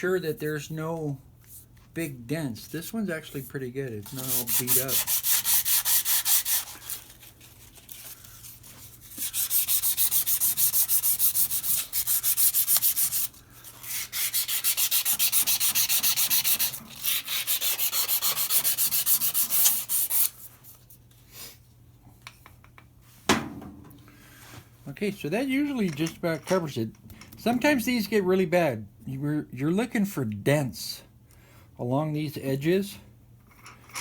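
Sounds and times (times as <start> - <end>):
abrasive rubbing on metal: 4.0 - 7.0.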